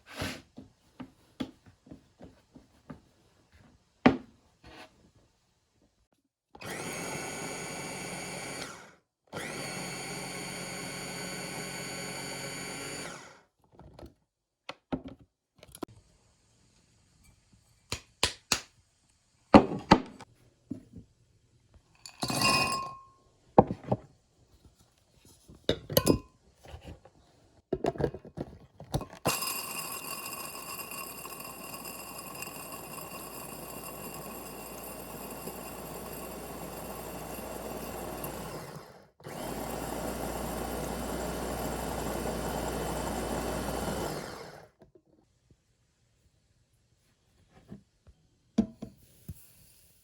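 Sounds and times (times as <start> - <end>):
electric blender running: 6.6 - 13.4, 29.3 - 44.8.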